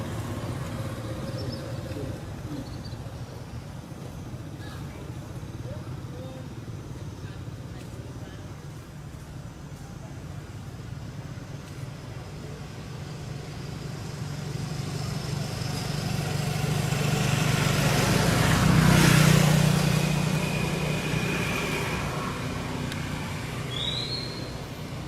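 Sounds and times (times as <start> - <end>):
vehicle passing by: 0.0 - 4.0, 12.6 - 25.0.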